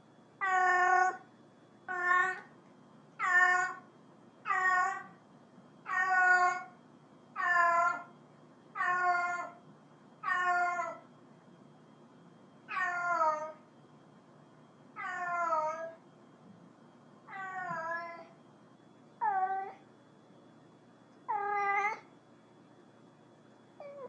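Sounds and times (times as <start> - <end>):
cat meowing: 0.4 - 1.2, 1.9 - 2.5, 3.2 - 3.8, 4.5 - 5.1, 5.9 - 6.7, 10.2 - 11.0, 12.7 - 13.6, 15.0 - 16.0, 17.3 - 18.3, 21.3 - 22.1.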